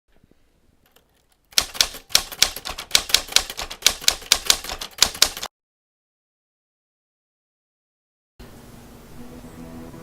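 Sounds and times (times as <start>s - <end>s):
rapid sharp clicks: 0.8s - 5.5s.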